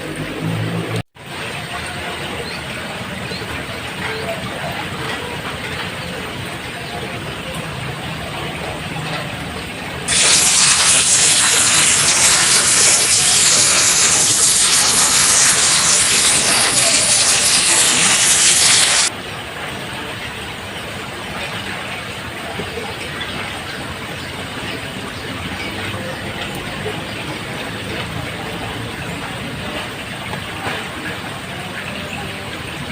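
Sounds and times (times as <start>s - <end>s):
rain falling on a roof: 0.1s - 32.9s
loud hiss of heavy water: 10.1s - 19.1s.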